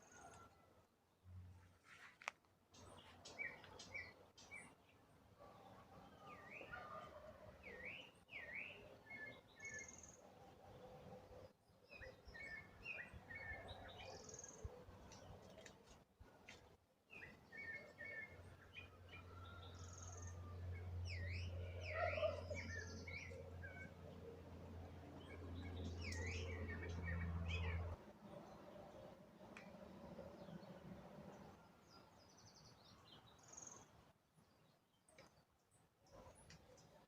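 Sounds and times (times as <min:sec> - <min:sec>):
birds chirping: 0:17.1 - 0:24.4, 0:25.0 - 0:33.9.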